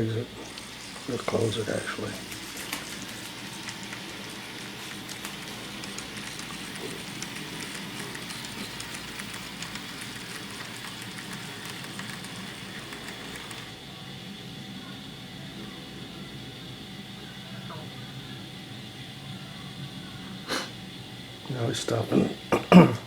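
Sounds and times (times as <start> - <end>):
model train motor whir: 0.0 - 13.8
wheels clicking on rails: 0.4 - 13.8.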